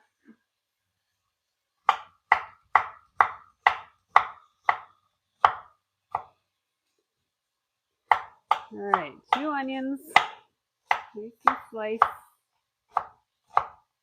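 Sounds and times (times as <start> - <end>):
knife chopping on cutting board: 1.8 - 6.4, 8.1 - 12.2, 12.9 - 13.9.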